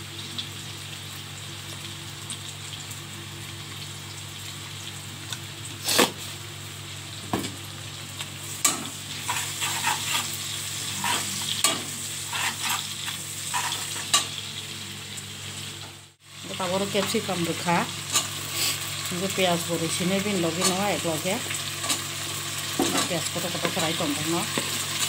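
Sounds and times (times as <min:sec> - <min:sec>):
chicken sizzling in hot oil: 0:00.0 - 0:25.0
spatula scraping a pan: 0:08.6 - 0:14.4.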